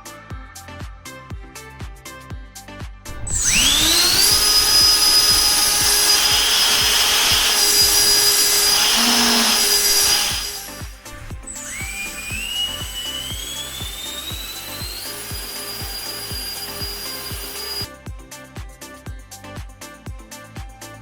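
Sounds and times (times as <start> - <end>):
background music with beat: 0.0 - 8.8, 10.4 - 21.0
electric fan whining: 3.1 - 17.9.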